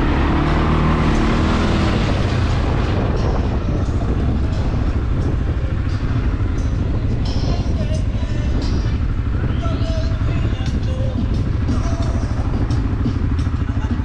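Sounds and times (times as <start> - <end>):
atv engine running: 0.0 - 14.0
steady rushing noise: 0.0 - 14.0.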